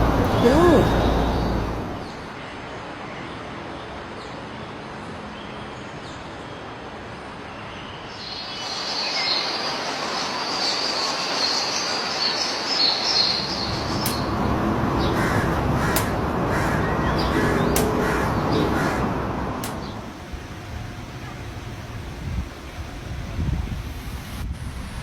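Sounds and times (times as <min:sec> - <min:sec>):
steady background noise: 0:00.0 - 0:25.0
small birds chirping: 0:07.5 - 0:19.0.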